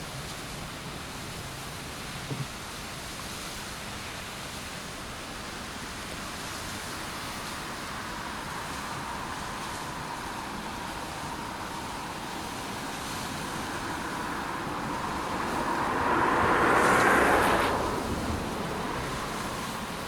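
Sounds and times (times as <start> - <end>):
steady rushing noise: 5.5 - 20.0
road vehicle passing: 5.6 - 20.0.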